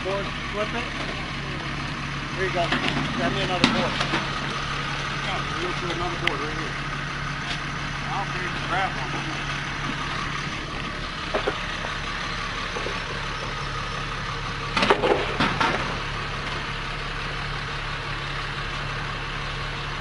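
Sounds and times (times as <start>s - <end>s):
engine idling: 0.0s - 20.0s
sharp knocks and clatter: 2.6s - 4.6s, 11.3s - 12.0s, 14.7s - 16.7s.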